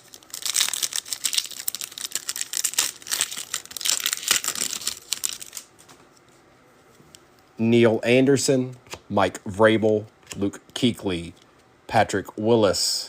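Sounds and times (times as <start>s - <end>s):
card wrapper tearing and crinkling: 0.0s - 5.8s.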